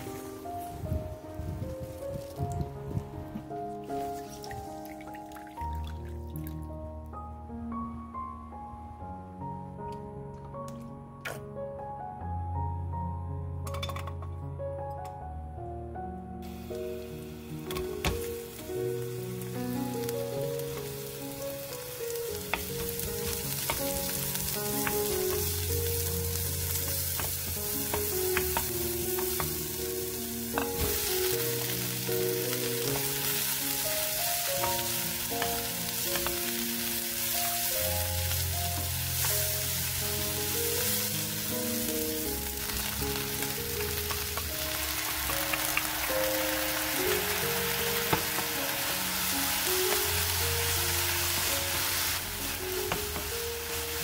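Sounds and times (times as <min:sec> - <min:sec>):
vegetables sizzling in oil: 0:00.0 - 0:02.7, 0:16.4 - 0:54.0.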